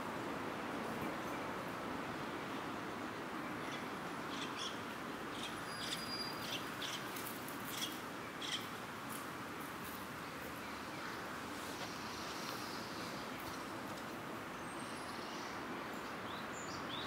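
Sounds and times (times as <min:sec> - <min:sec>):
outdoor background hiss: 0:00.0 - 0:17.0
small birds chirping: 0:03.6 - 0:09.2.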